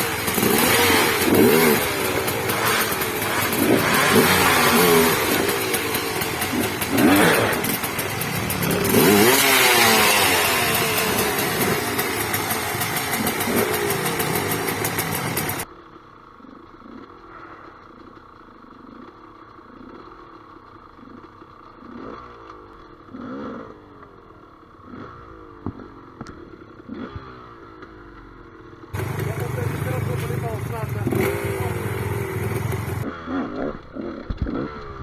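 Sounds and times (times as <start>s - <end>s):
motorcycle engine revving loudly: 0.0s - 15.6s, 23.1s - 23.9s, 24.8s - 26.1s, 26.8s - 27.7s, 29.0s - 35.0s
distant dirt bike engines revving: 0.0s - 28.2s, 28.8s - 35.0s.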